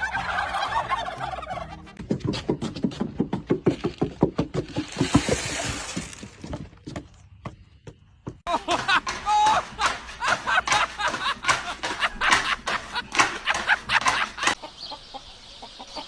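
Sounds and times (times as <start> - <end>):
turkey gobbling: 0.0 - 2.0.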